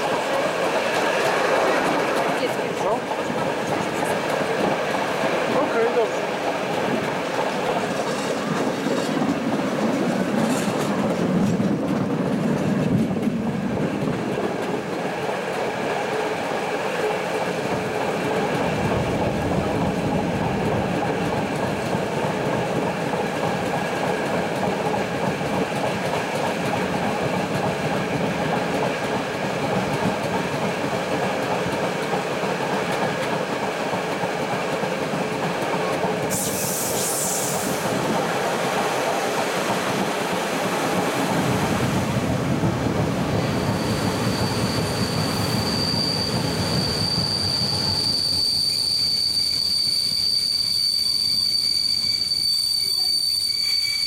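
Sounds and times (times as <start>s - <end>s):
wheels clickety-clack: 0.0s - 47.1s
train rumbling on track: 0.0s - 54.0s
high hiss: 36.3s - 38.0s.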